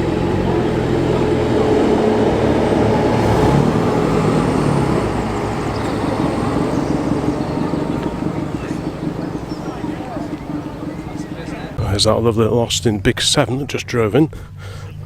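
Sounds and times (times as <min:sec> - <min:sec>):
car engine driving past: 0:00.0 - 0:11.8.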